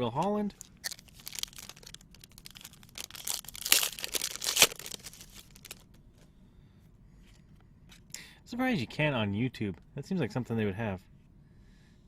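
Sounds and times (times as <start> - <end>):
foil wrapper crinkling: 0.5 - 5.9
cards rustling and clicking: 0.6 - 5.9.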